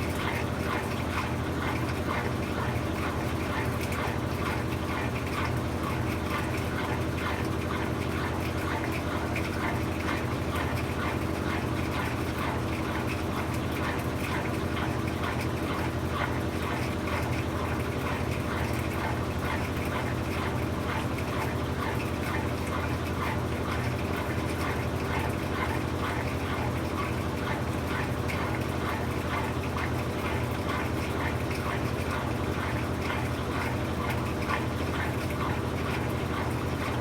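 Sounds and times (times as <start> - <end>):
washing machine motor hum: 0.0 - 37.0.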